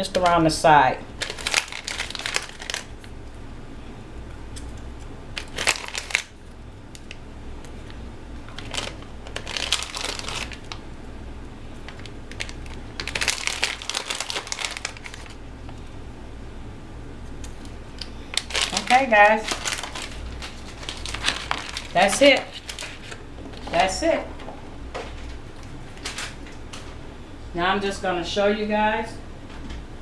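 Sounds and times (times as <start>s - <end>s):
steady low hum: 0.0s - 30.0s
crinkling and rustling: 1.1s - 3.2s, 5.4s - 10.8s, 11.8s - 15.8s, 17.5s - 27.0s.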